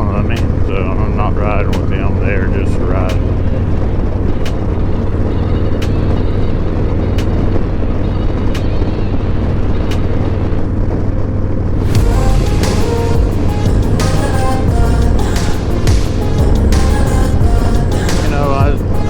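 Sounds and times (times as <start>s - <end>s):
motorcycle engine low rumble: 11.8s - 18.9s.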